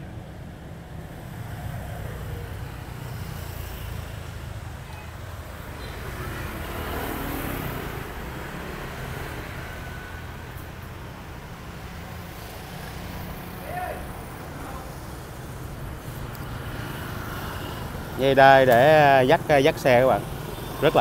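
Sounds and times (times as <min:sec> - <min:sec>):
traffic rumble: 0:00.0 - 0:21.0
vehicle passing: 0:06.0 - 0:21.0.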